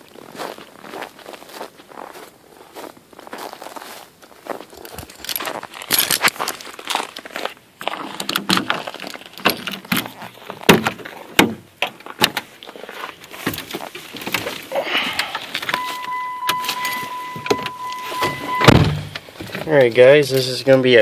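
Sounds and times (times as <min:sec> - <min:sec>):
person settling in vehicle seat: 0:13.4 - 0:19.7
high electronic warning tone: 0:15.7 - 0:19.2.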